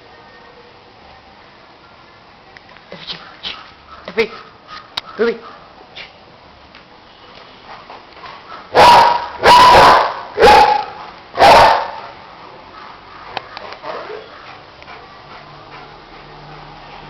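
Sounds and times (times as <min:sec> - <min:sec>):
dog barking deeply: 0:08.6 - 0:12.2.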